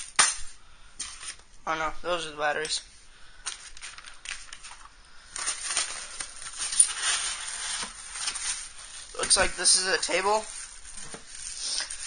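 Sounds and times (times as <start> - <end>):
packaging rustling: 3.4 - 12.0.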